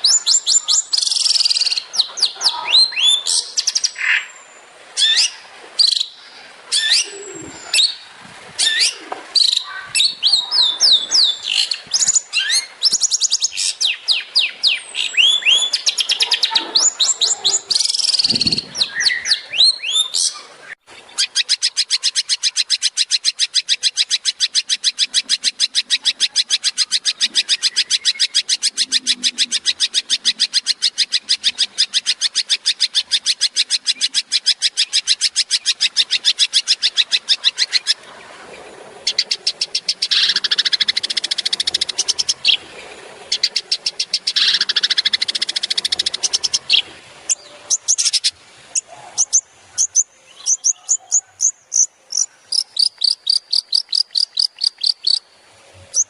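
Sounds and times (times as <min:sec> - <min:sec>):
bird harsh chattering: 0:00.0 - 0:04.3, 0:08.6 - 0:20.4, 0:39.0 - 0:42.6, 0:43.3 - 0:55.2.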